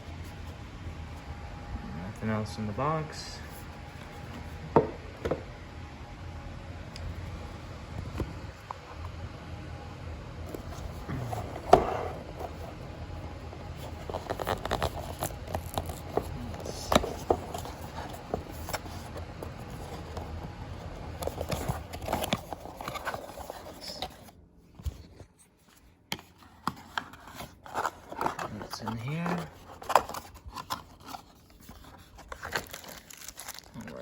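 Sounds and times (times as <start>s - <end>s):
low background hum: 0.0s - 34.0s
packaging clicks taps and scrapes: 13.8s - 24.3s, 26.1s - 33.8s.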